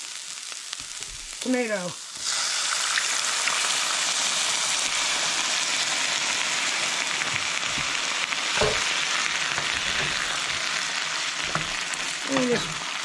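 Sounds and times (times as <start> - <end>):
tomatoes sizzling in oil: 0.0 - 13.0
dull knock: 8.6 - 8.8.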